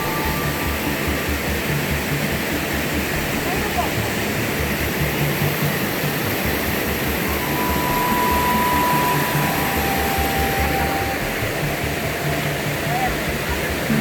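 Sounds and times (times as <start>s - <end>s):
river and waterfalls rushing: 0.0s - 14.0s
thin high tone: 7.0s - 14.0s.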